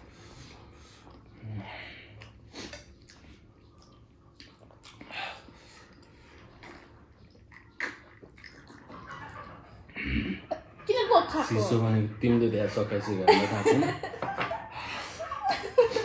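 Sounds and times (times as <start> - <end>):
faint chewing and mouth smacks: 0.4 - 1.4, 2.0 - 10.0.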